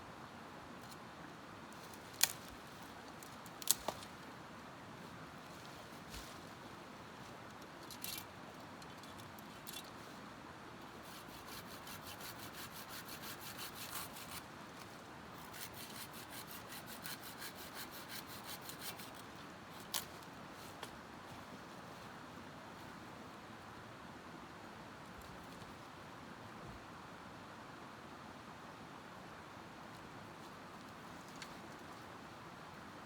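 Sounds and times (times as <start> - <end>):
rhythmic scraping on wood: 15.4 - 19.2.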